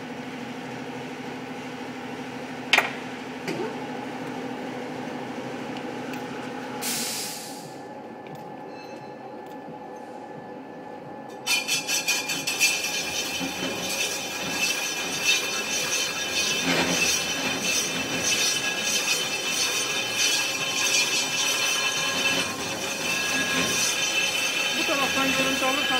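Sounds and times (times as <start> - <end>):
lathe cutting metal wheel rim: 11.4 - 25.9.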